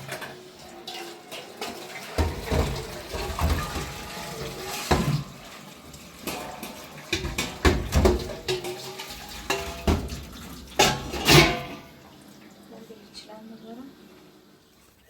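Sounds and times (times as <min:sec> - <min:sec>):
dishes and pots clinking: 0:00.0 - 0:12.0
water running: 0:00.0 - 0:15.0.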